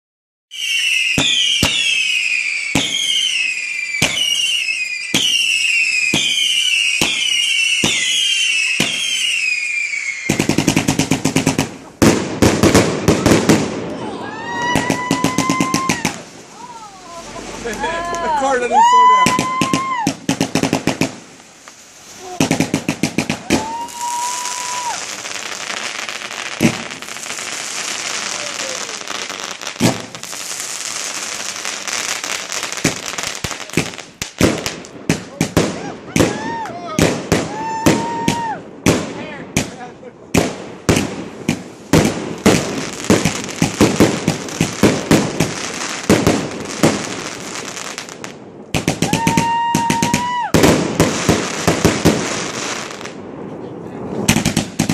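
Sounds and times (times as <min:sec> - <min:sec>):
firework whistle: 0:00.5 - 0:10.9, 0:13.0 - 0:25.9, 0:48.9 - 0:50.8
fireworks crackling: 0:00.5 - 0:54.9
fireworks sharp pops: 0:01.1 - 0:09.3, 0:10.3 - 0:14.0, 0:19.2 - 0:53.5, 0:54.1 - 0:54.9.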